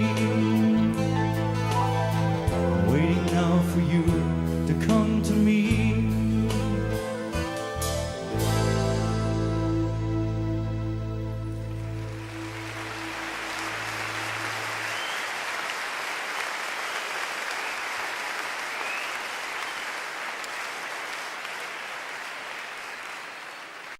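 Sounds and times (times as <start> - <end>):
sustained music chords: 6.2 - 14.9
audience applauding: 11.5 - 23.9.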